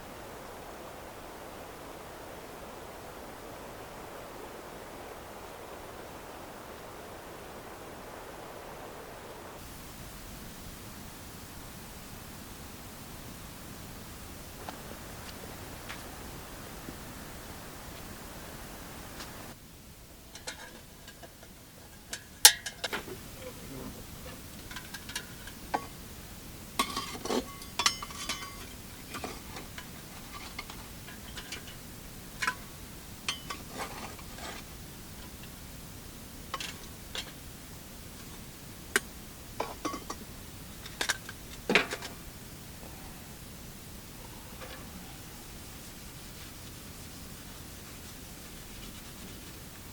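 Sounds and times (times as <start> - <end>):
dishes and utensils clinking: 20.3 - 23.2, 24.3 - 26.0, 26.8 - 31.8, 33.3 - 34.6, 39.6 - 42.2.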